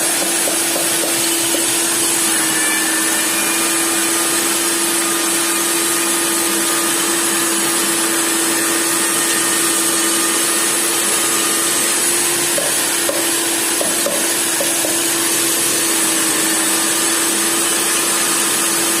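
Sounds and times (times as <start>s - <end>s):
core drill motor whine: 0.0s - 19.0s
drill grinding: 0.0s - 19.0s.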